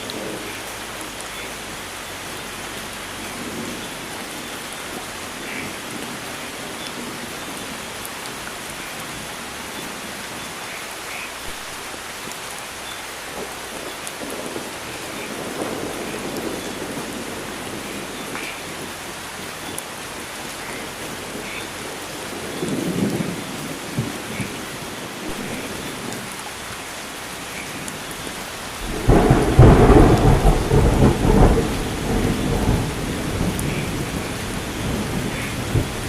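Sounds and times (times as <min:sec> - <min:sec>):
heavy rain: 0:00.0 - 0:36.0
thunder rumble: 0:13.3 - 0:19.6, 0:27.3 - 0:36.0.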